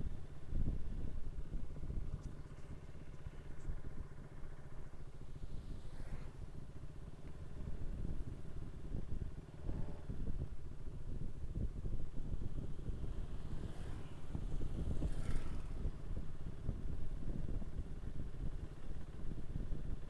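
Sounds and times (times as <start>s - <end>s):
motorcycle engine running: 0.0s - 20.0s
wind rumble on microphone: 0.0s - 20.0s.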